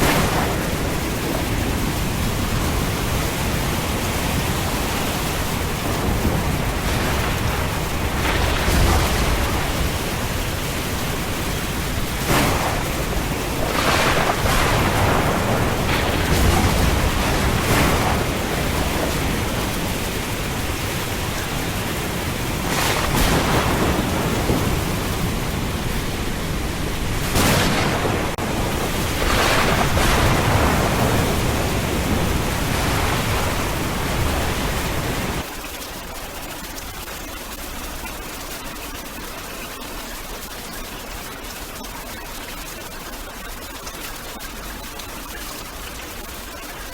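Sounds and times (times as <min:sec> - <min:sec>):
thunder crashes: 0:00.0 - 0:35.4
heavy rain: 0:00.0 - 0:46.9.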